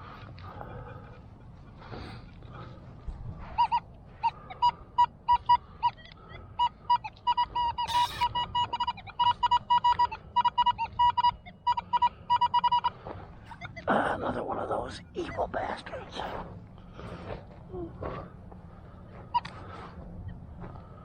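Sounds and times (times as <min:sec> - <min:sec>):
metal detector beeps: 0:03.6 - 0:13.9, 0:19.3 - 0:19.8.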